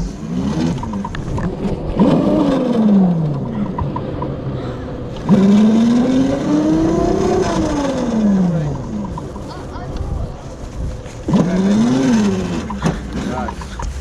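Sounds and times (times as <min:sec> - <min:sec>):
electric motor whining: 0:00.0 - 0:09.4.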